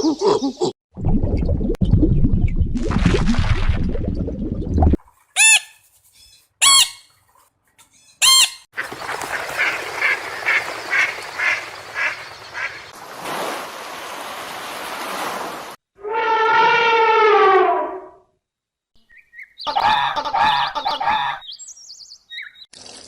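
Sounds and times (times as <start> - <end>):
bird calls: 5.4 - 13.0, 19.0 - 22.7.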